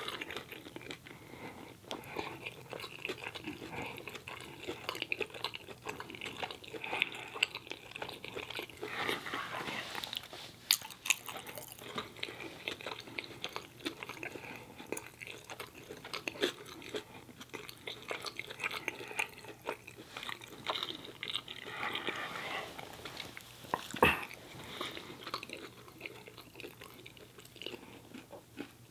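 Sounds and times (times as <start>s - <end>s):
man chewing food: 0.0s - 28.9s.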